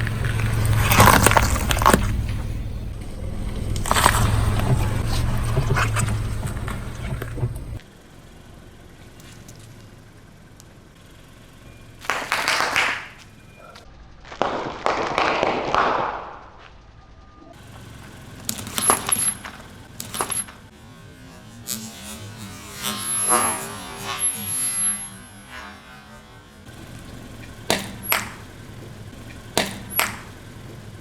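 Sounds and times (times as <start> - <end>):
objects crunching under tyre: 0.0 - 7.8, 12.0 - 20.8.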